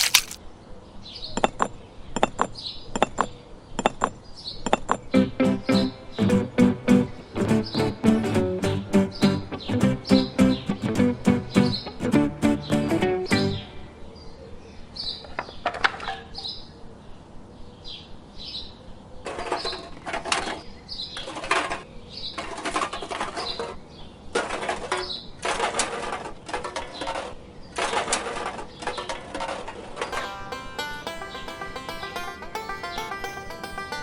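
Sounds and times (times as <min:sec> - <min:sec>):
rustling or scraping bursts: 0:00.0 - 0:00.4.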